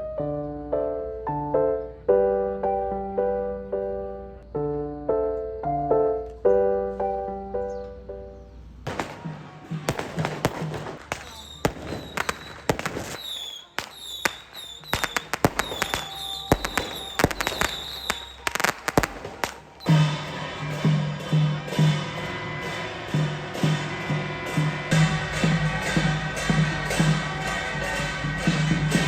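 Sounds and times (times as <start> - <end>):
sharp cracks and pops: 8.9 - 20.0
high chirps: 8.9 - 20.1
music with steady beat: 8.9 - 29.0.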